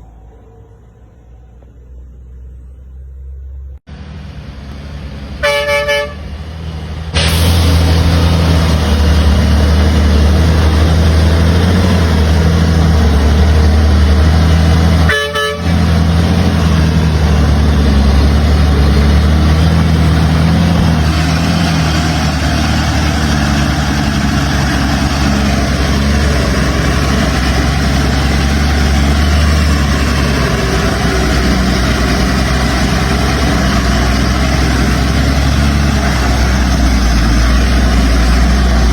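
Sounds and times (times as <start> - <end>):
truck engine running: 0.0 - 38.9
truck horn toot: 5.4 - 6.6, 14.4 - 17.0.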